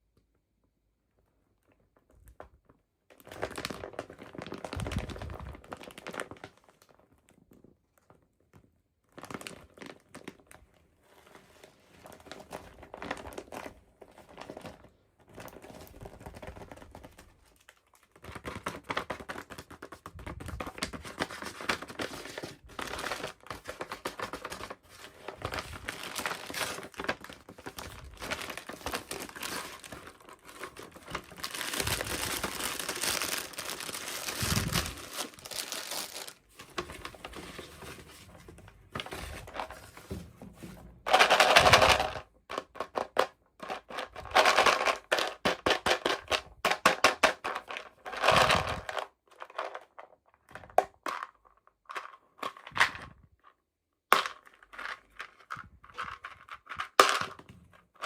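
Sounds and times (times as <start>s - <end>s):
plastic packaging crinkling: 3.2s - 7.0s, 12.4s - 49.7s.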